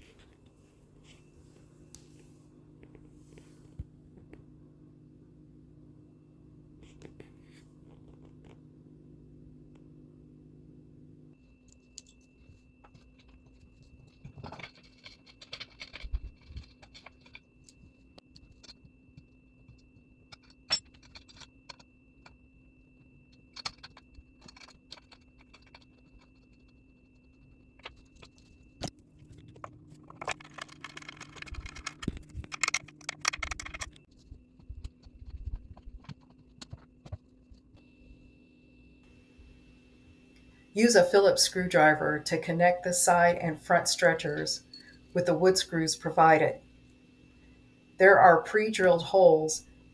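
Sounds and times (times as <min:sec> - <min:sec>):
metal hardware clinking: 0:30.0 - 0:34.0.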